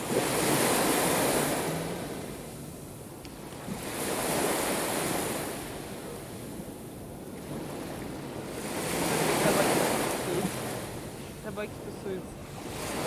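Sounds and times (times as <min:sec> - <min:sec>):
surf washing onto shore: 0:00.0 - 0:13.0.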